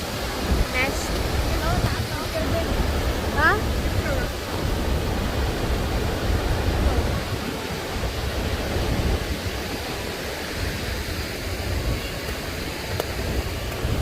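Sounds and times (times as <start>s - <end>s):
waterfall roar: 0.0s - 14.0s.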